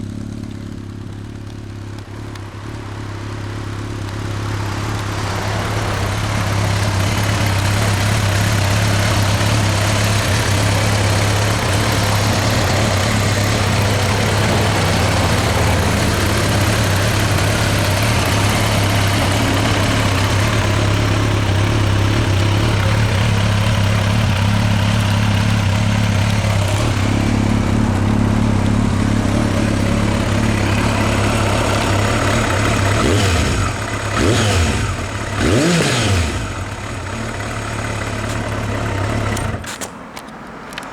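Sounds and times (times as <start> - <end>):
motorcycle engine idling and revving: 0.0 - 40.9.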